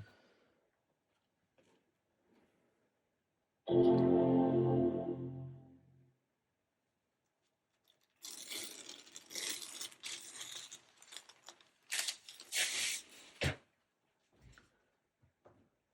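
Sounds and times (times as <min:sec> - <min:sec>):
packaging tearing and crinkling: 0:08.2 - 0:13.4.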